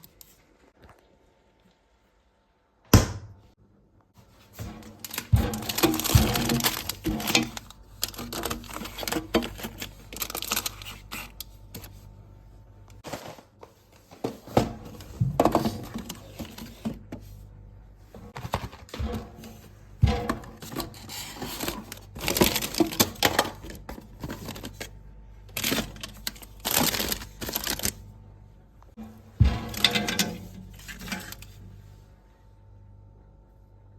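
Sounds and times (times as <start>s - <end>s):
plastic wrappers crinkling: 4.7s - 11.9s, 20.6s - 28.0s.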